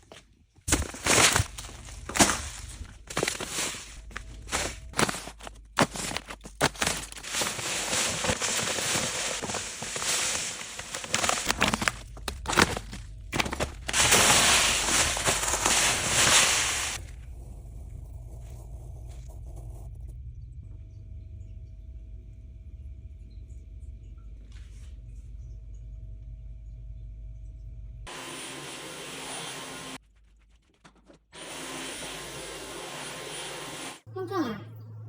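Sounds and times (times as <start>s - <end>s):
cat litter granules pouring: 0.0s - 17.1s.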